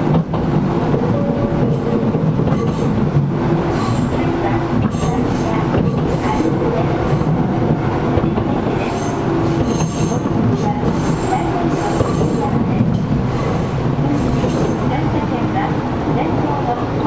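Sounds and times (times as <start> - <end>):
train interior running noise: 0.0 - 17.0
high wheel squeals: 3.7 - 7.4, 8.6 - 12.6.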